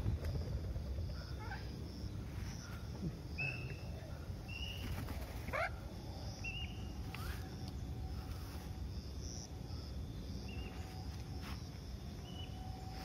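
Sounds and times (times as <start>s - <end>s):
low background rumble: 0.0s - 13.0s
bird chirps: 1.2s - 8.6s, 12.2s - 13.0s.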